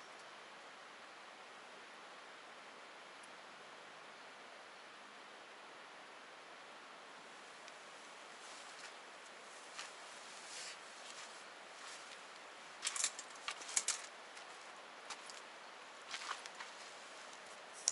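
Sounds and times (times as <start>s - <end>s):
faint steady hiss: 0.0s - 17.9s
campfire crackling: 7.4s - 17.9s.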